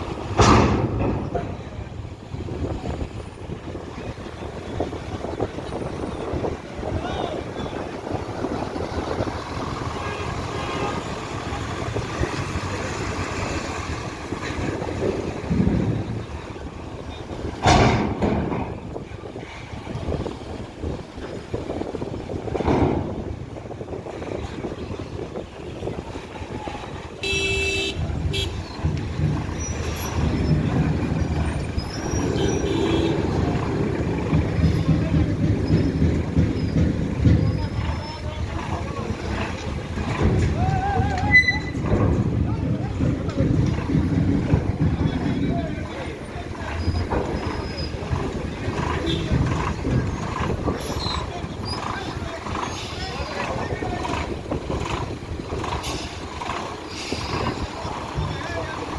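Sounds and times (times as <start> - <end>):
heavy vehicle engine running: 0.0 - 58.9
vehicle horn toots: 27.2 - 28.8, 32.0 - 34.3, 49.0 - 49.3.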